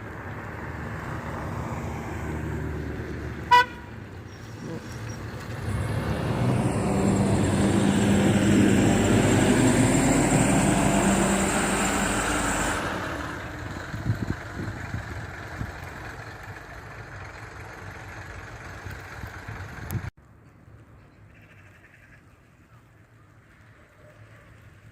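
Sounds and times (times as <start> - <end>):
bus engine with high whine: 0.0 - 20.2.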